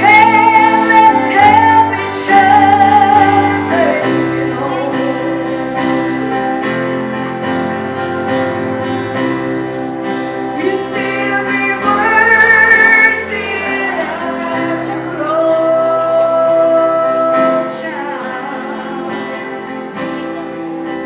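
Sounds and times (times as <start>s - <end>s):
woman singing gospel: 0.0s - 5.8s, 10.6s - 19.4s
piano chords: 0.0s - 21.0s.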